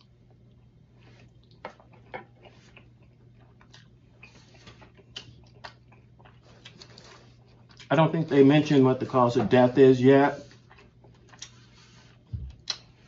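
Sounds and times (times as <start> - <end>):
steady low hum: 0.0 - 13.0
faint mouth clicks and smacks: 12.6 - 12.9.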